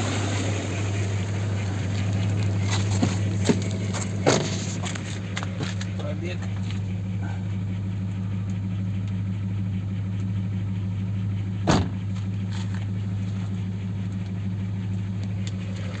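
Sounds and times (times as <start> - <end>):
car engine idling: 0.0 - 16.0
sharp engine knock: 11.6 - 12.8.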